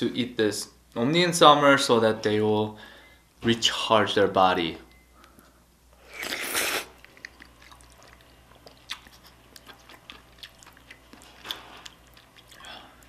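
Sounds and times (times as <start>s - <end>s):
close-miked chewing: 6.2s - 13.0s.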